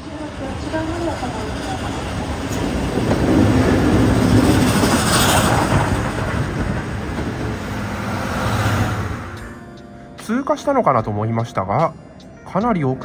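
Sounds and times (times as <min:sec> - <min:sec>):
train wheels rumbling on rail: 0:00.0 - 0:09.6.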